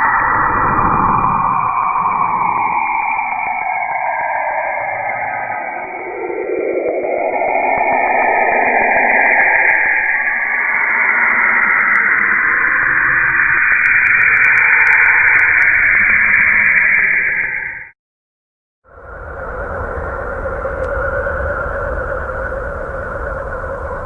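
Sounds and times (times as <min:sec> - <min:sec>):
faint crackles: 0:18.9 - 0:24.0
hissing radio static: 0:18.9 - 0:24.0.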